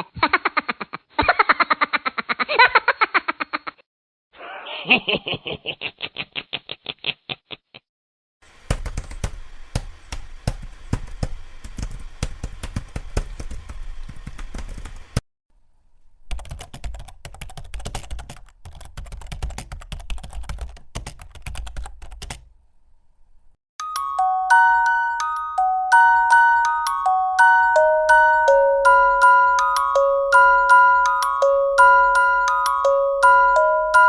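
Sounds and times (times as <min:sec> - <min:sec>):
glockenspiel-like tune: 0:23.8 - 0:34.0.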